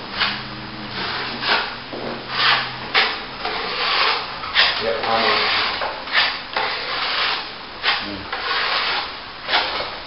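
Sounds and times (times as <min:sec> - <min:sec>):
trowel scraping wet plaster: 0:02.3 - 0:10.0.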